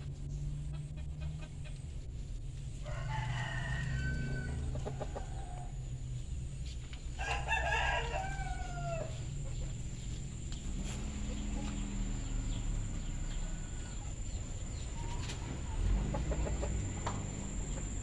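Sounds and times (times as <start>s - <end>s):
rooster crowing: 2.8s - 5.8s, 7.2s - 9.4s, 12.2s - 14.2s.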